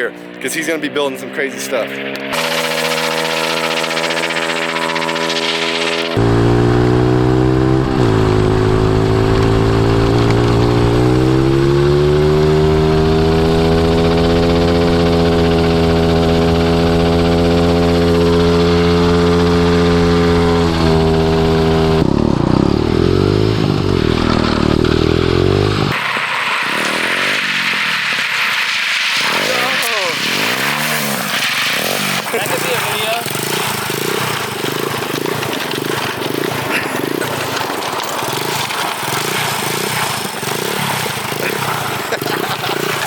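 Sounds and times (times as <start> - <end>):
small motorbike engine running hard: 0.0 - 43.0.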